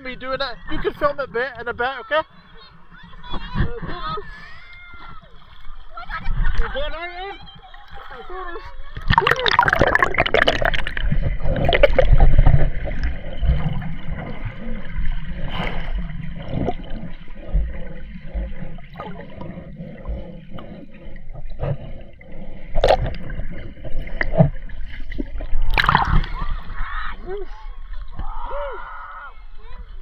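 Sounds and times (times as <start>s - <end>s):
water gurgling and sloshing: 0.0s - 30.0s
low underwater rumble: 2.4s - 30.0s
water splashes: 2.9s - 28.6s.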